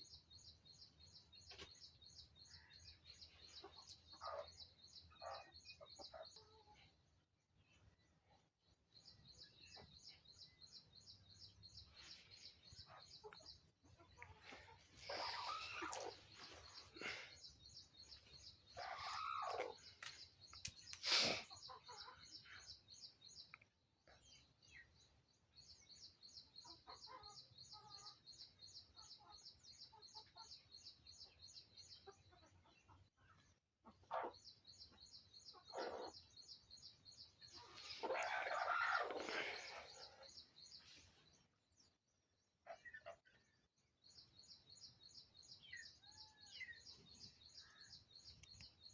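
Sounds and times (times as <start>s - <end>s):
birds calling: 9.0s - 25.0s, 33.8s - 41.9s.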